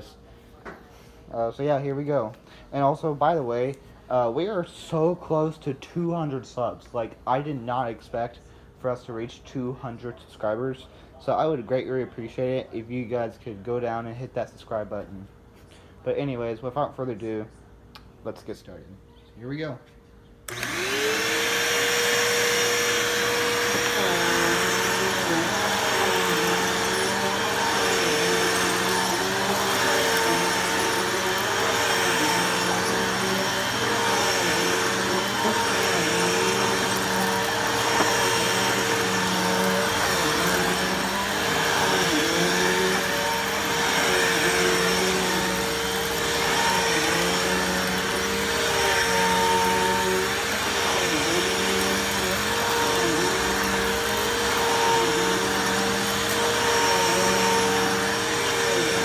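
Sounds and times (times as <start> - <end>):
vacuum cleaner motor whine: 20.4 - 59.0.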